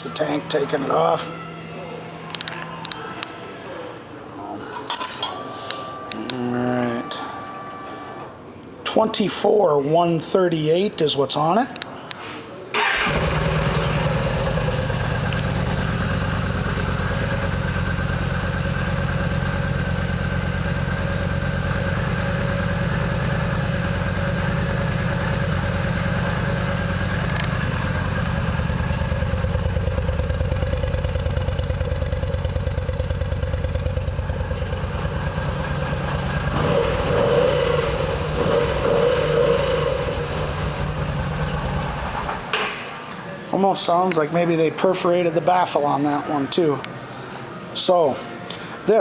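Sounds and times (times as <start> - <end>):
motorcycle engine idling and revving: 12.8 - 42.5.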